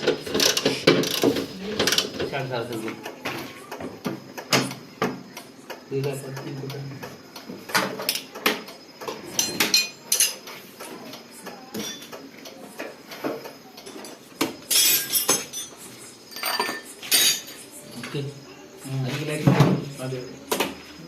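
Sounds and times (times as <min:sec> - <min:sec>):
metal tools clinking and clanking: 0:09.4 - 0:10.4, 0:13.9 - 0:17.6.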